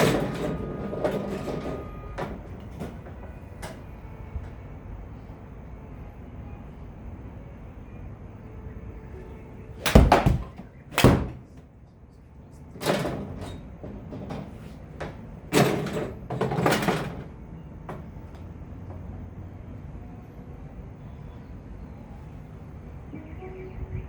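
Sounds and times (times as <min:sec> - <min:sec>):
sharp knocks and thuds: 0:09.8 - 0:11.6.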